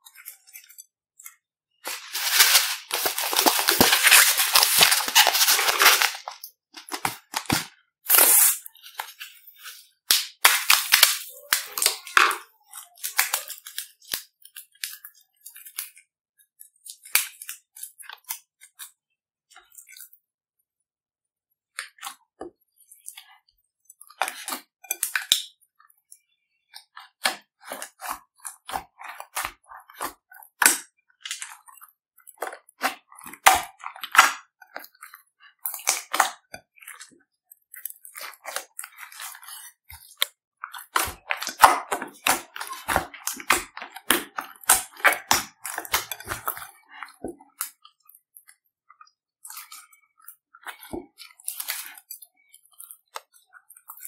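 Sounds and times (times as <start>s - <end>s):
slime squeezed and stretched: 1.9s - 9.8s.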